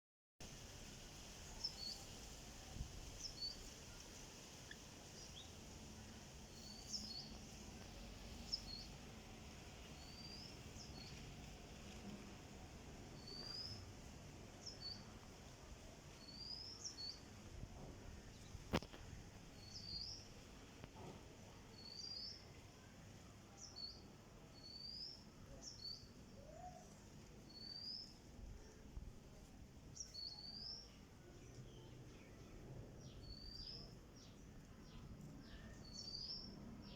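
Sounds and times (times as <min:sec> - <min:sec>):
bird chirping: 0:06.5 - 0:07.6, 0:10.0 - 0:11.2, 0:29.9 - 0:36.9.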